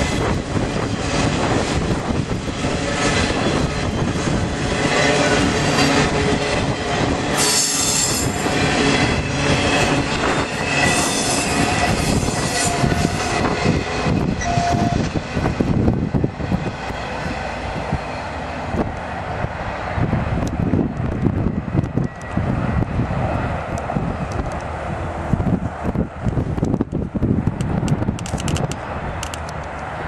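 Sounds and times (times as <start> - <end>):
train wheels squealing: 7.3 - 15.2.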